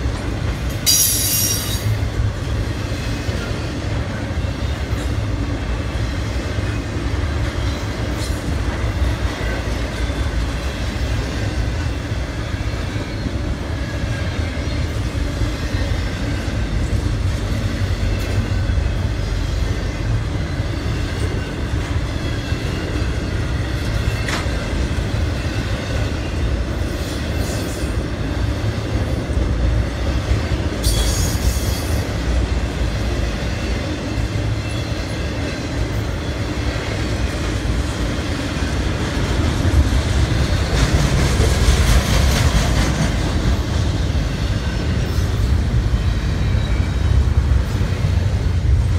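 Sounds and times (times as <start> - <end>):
train wheels rumbling on rails: 0.0 - 48.9
train wheels screeching: 0.6 - 48.8.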